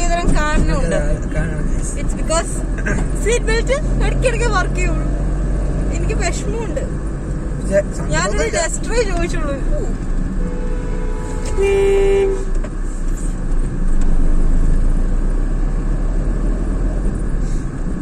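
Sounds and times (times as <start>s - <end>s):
car engine and road rumble: 0.0s - 18.0s
two-note vehicle horn: 10.4s - 12.6s.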